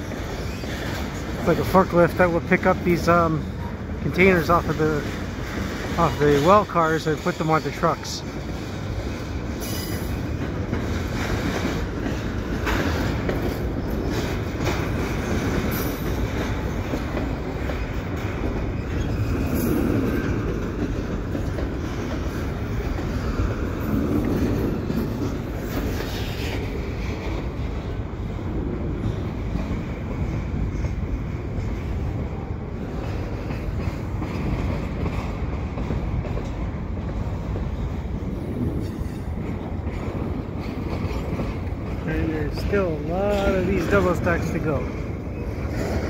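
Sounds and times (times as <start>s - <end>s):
rail cars rolling rumble: 0.0s - 46.0s
wheels clicking over rail joints: 0.0s - 46.0s.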